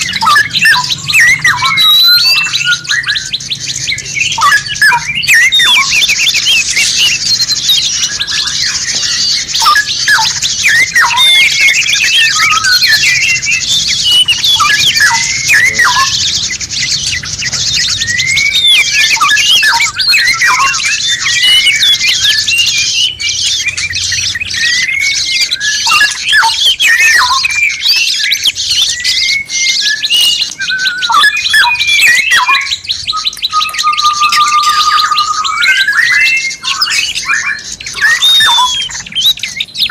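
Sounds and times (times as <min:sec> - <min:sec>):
held bird whistle: 0:00.0 - 0:39.9
songbirds chirping and whistling: 0:00.0 - 0:39.9.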